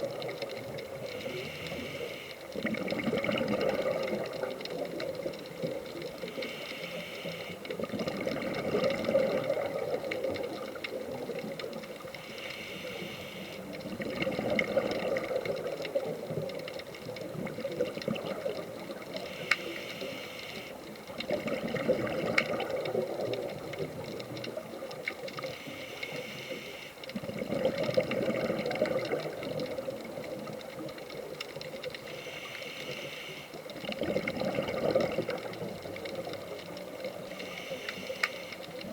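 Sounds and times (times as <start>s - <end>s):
hissing regulator inhale: 1.1s - 2.5s, 6.3s - 7.7s, 12.1s - 13.8s, 19.1s - 20.8s, 25.4s - 27.1s, 32.0s - 33.7s, 37.2s - 38.8s
bubbling exhale underwater: 2.6s - 6.6s, 7.6s - 12.0s, 13.6s - 19.3s, 21.1s - 25.5s, 27.1s - 31.3s, 33.7s - 37.7s.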